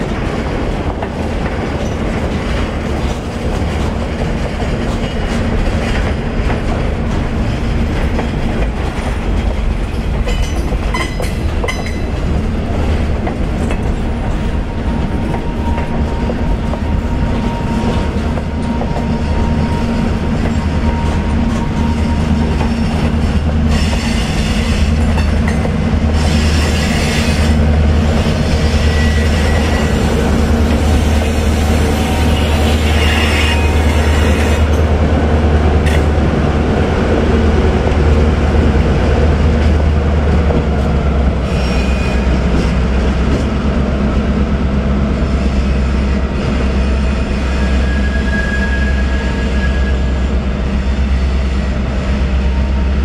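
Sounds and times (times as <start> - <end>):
diesel locomotives rumbling: 0.0 - 53.0
high wheel squeals: 28.3 - 30.2, 32.0 - 34.6, 47.2 - 50.2.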